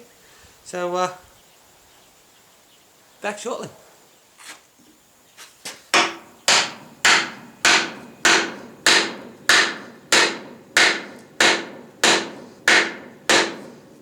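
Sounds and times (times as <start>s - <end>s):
hammer blows on steel: 6.0s - 14.0s.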